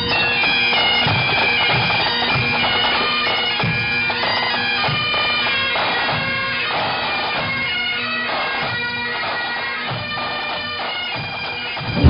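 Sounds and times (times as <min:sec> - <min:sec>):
bagpipes playing: 0:00.0 - 0:12.0.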